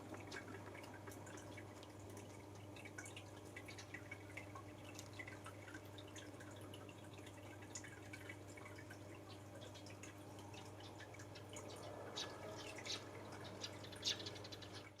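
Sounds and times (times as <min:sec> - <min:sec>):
sparrows chirping: 0:09.3 - 0:15.0.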